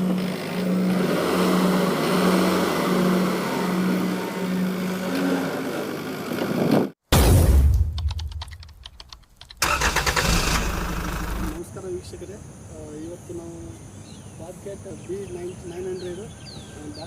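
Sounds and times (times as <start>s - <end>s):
backhoe engine running: 0.0s - 6.6s, 9.6s - 11.6s.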